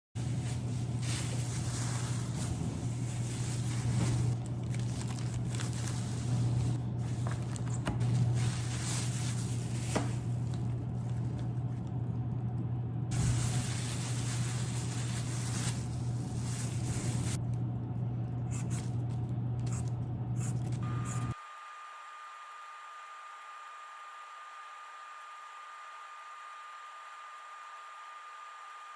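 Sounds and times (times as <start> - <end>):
steady low hum: 0.2 - 21.4.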